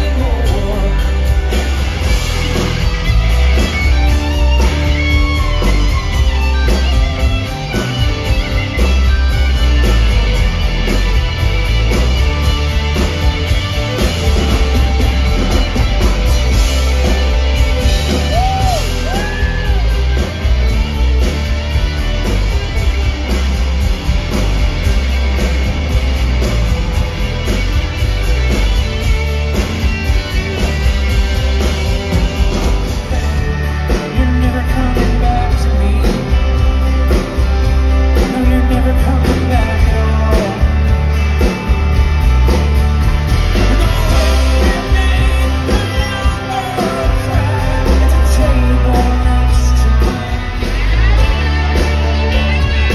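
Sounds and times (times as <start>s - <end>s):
person singing: 0.0s - 1.7s, 32.9s - 37.4s, 38.0s - 41.2s, 43.6s - 52.9s
heavy bass: 0.0s - 52.9s
live rock band playing: 0.0s - 52.9s.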